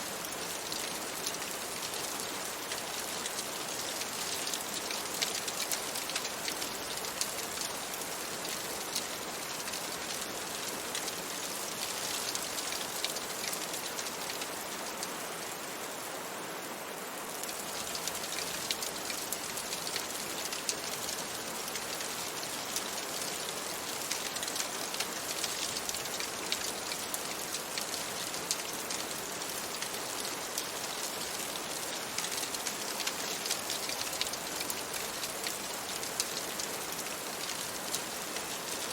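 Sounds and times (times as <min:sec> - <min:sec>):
rain on a window: 0:00.0 - 0:38.9.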